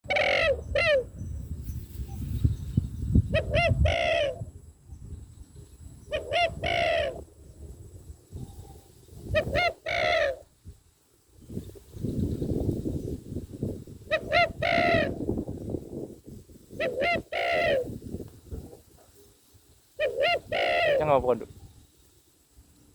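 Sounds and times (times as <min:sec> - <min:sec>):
waterhen croaking calls: 0:00.1 - 0:01.1, 0:03.4 - 0:04.5, 0:06.1 - 0:07.2, 0:09.3 - 0:10.4, 0:14.1 - 0:15.3, 0:16.8 - 0:18.0, 0:20.0 - 0:21.2.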